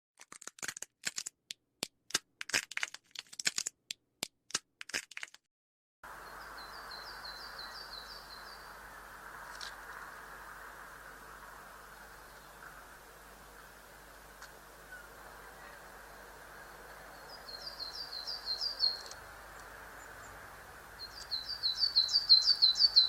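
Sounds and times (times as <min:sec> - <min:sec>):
sharp irregular cracks: 0:00.2 - 0:05.5, 0:09.2 - 0:11.6
outdoor background hiss: 0:06.0 - 0:23.0
small bird calling: 0:06.2 - 0:23.0.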